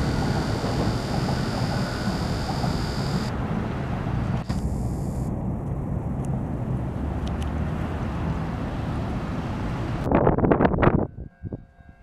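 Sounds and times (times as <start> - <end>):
faint ticks: 0.0 - 3.3
electric train rumbling: 0.0 - 10.0.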